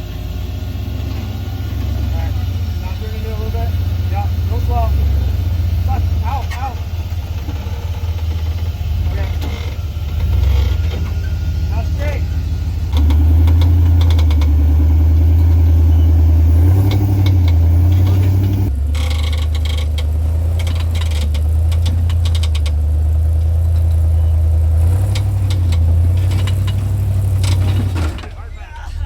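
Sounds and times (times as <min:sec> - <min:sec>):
off-road vehicle engine running: 0:00.0 - 0:29.0
clicks and rattles: 0:12.9 - 0:14.6, 0:16.9 - 0:28.3.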